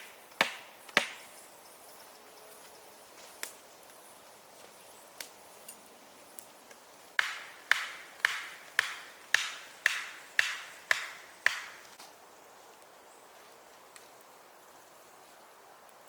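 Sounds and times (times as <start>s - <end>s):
hand tool striking wood: 0.4s - 1.2s, 7.2s - 11.9s.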